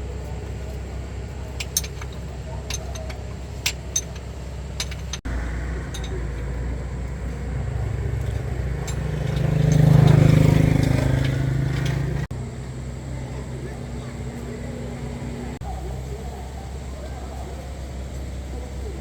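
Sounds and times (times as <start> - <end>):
truck engine rumbling and revving: 0.0 - 19.0
light metallic clicks: 0.2 - 12.3.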